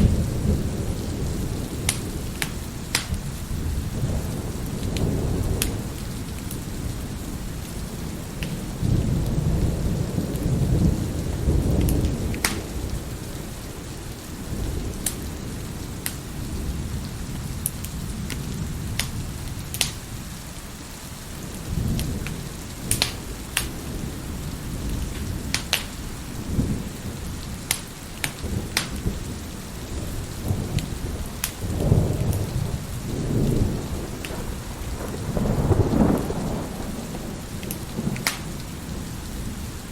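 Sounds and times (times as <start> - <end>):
low rolling thunder: 0.0 - 39.9
steady rain: 0.0 - 39.9
wood fire crackling and popping: 1.7 - 3.3, 4.8 - 6.7, 8.4 - 8.7, 11.8 - 12.8, 14.9 - 15.3, 16.0 - 16.3, 17.6 - 20.0, 21.9 - 23.8, 24.8 - 26.3, 27.5 - 29.3, 30.6 - 32.6, 37.6 - 38.7.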